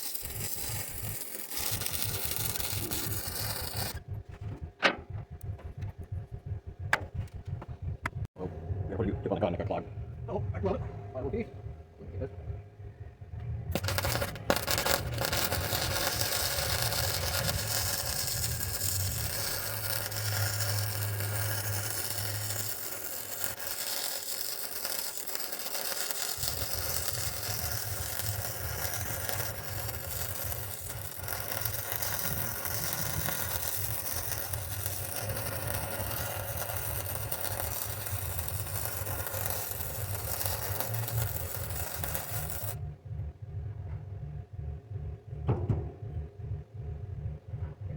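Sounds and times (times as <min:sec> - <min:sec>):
welder arc crackling: 0:00.0 - 0:04.6, 0:13.7 - 0:42.8
low hum: 0:00.1 - 0:23.8, 0:26.3 - 0:47.9.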